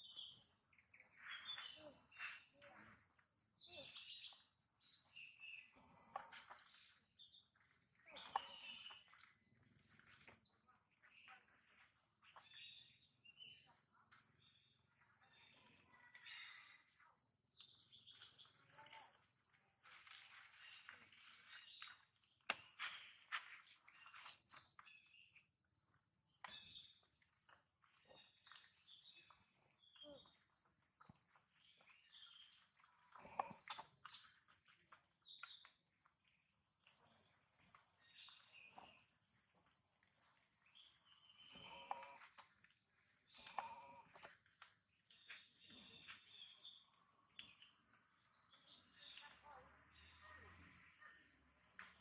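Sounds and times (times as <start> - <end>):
birds chirping: 0.0 - 52.0.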